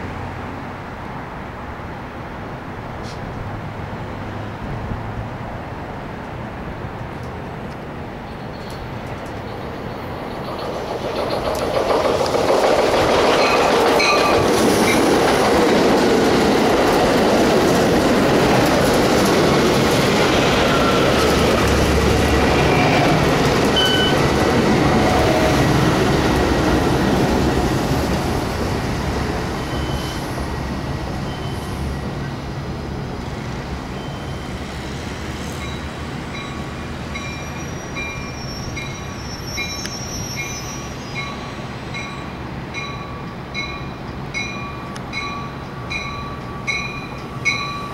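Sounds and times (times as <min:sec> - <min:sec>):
train wheels clattering over rails: 0:10.2 - 0:30.0
high wheel squeals: 0:22.4 - 0:24.2, 0:29.6 - 0:30.3, 0:31.2 - 0:31.8, 0:33.9 - 0:34.6, 0:37.2 - 0:41.7.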